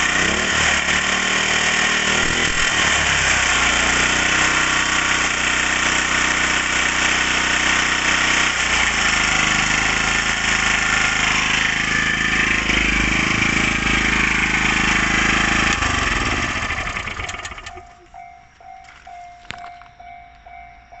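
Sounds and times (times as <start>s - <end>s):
portable generator running: 0.0s - 20.6s.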